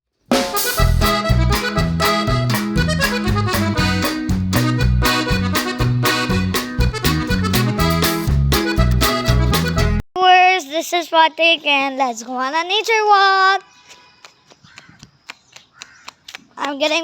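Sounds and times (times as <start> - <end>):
upbeat music with accordion melody: 0.3 - 10.0.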